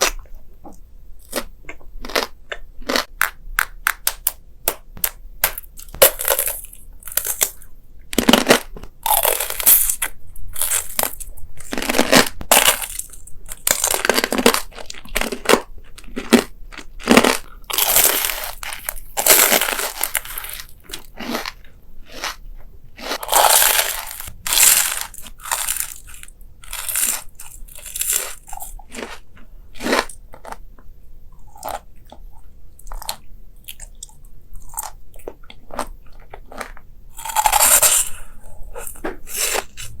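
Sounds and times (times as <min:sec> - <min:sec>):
person chewing crunchy food: 0:00.0 - 0:40.0.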